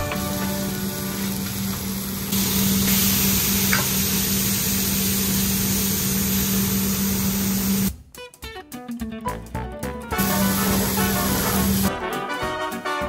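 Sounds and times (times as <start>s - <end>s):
burger patties sizzling on griddle: 0.0s - 7.9s, 10.2s - 11.9s.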